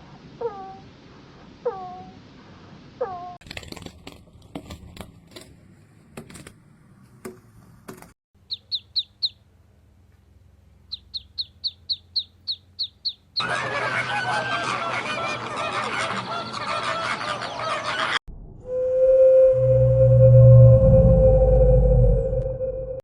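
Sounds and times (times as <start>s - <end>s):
small bird chirping: 8.4s - 9.5s, 10.8s - 13.4s
chorus of many birds calling: 10.9s - 18.2s.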